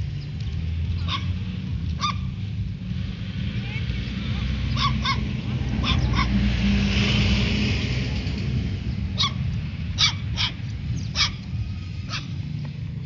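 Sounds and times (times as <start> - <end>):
puppies yapping: 0.9 - 2.4, 4.6 - 6.5, 9.1 - 12.5
low background rumble: 7.4 - 13.0.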